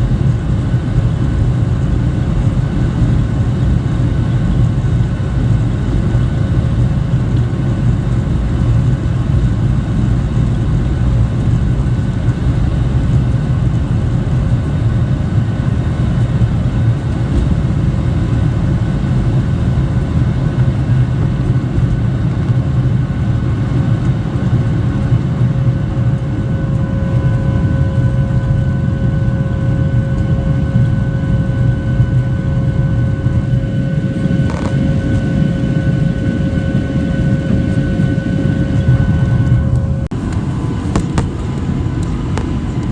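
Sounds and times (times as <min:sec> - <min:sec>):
airplane cabin rumble and hum: 0:00.0 - 0:42.9
thin steady whine: 0:25.2 - 0:42.9.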